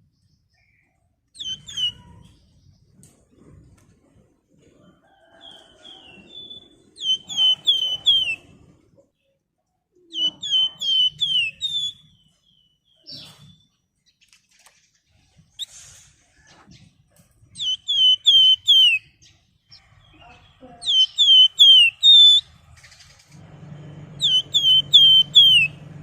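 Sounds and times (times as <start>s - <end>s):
songbird whistling: 1.4s - 2.2s, 5.5s - 8.5s, 10.1s - 13.6s, 17.6s - 19.2s, 20.8s - 22.5s, 23.8s - 25.9s.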